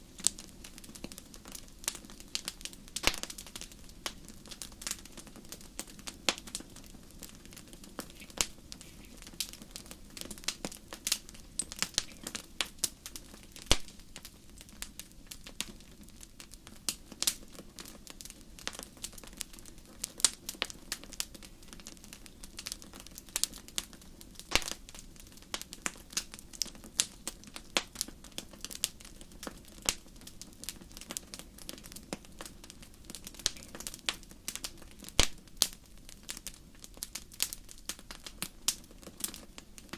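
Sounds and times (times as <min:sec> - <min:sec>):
fire snaps and pops: 0:00.0 - 0:39.9
low rush of burning fire: 0:00.0 - 0:39.9.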